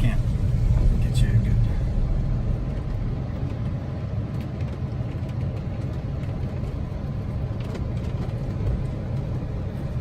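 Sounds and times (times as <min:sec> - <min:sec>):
tyres rumbling on rough road: 0:00.0 - 0:10.0.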